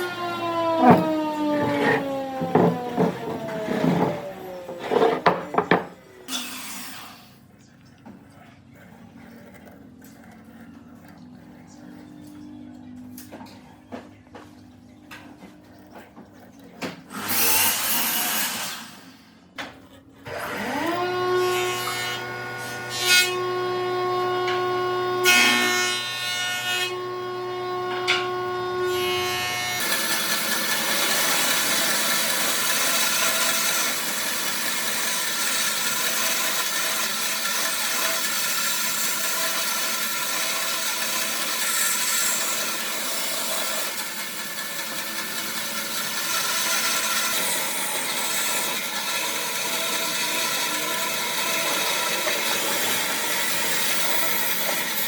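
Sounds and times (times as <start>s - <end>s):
power tool motor spinning: 0.0s - 5.8s, 27.0s - 55.0s
tool cutting into wood: 0.0s - 7.2s, 29.1s - 55.0s.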